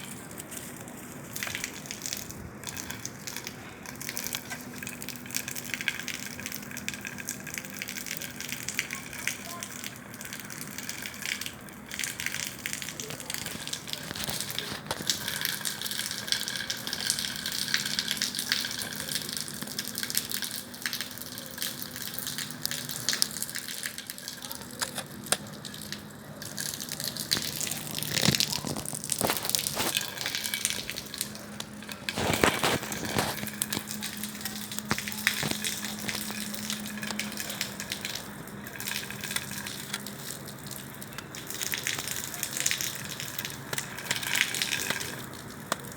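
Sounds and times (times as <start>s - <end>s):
fire crackles and pops: 0.0s - 45.9s
bonfire flames rushing: 10.1s - 20.6s, 21.7s - 45.9s.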